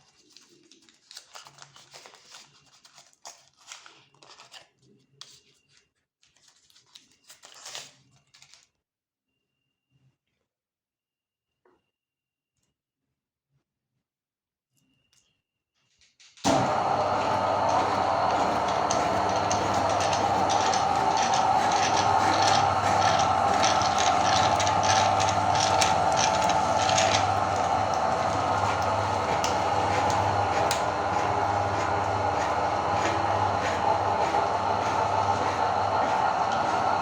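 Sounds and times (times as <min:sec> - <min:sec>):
chocolate cracking in grinder: 0:16.5 - 0:37.0
meat grinder motor hum: 0:16.5 - 0:37.0.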